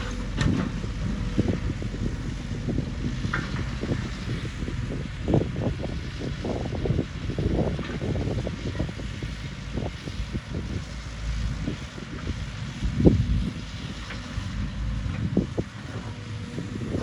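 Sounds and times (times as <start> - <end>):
heavy machinery rumbling: 0.0 - 17.0.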